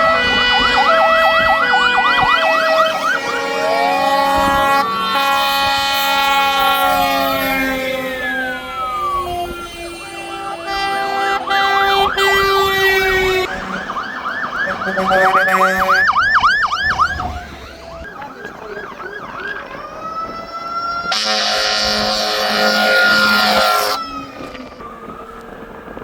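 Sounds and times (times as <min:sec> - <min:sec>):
loud horn blast: 0:00.0 - 0:17.9, 0:21.1 - 0:24.3
fire engine sirens: 0:00.0 - 0:26.0.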